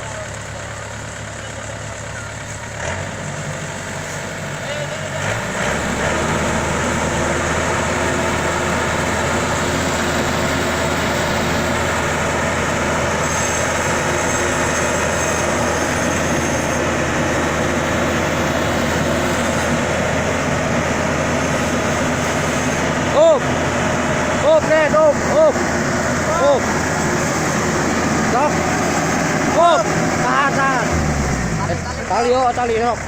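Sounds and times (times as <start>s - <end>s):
diesel engine revving: 0.0s - 33.0s.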